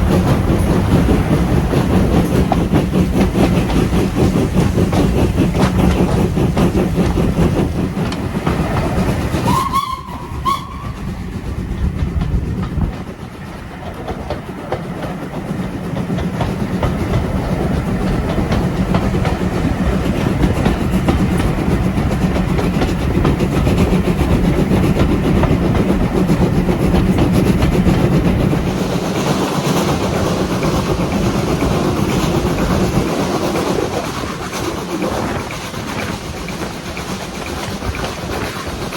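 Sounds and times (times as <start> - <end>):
train clattering on rails: 0.0 - 38.9
train whistle: 9.4 - 11.1.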